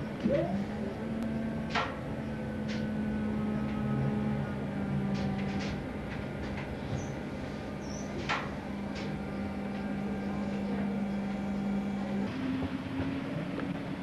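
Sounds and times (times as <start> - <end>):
electric railcar hum: 0.0 - 14.0.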